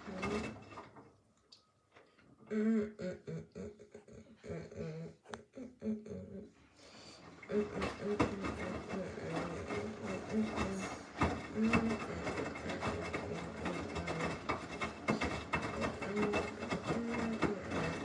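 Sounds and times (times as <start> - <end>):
washing machine motor hum: 0.0 - 1.0, 7.0 - 18.0.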